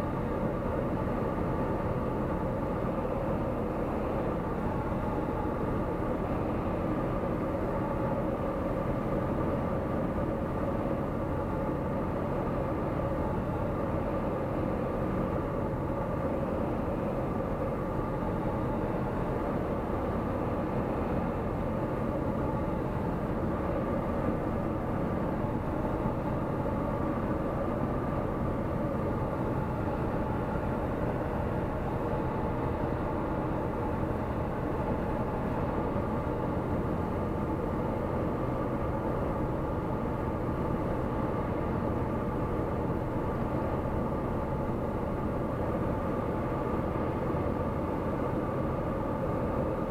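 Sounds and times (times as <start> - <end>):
light aircraft engine droning: 0.0 - 49.9.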